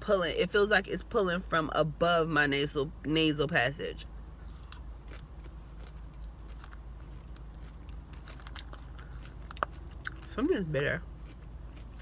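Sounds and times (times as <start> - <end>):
chewing salad: 4.4 - 12.0.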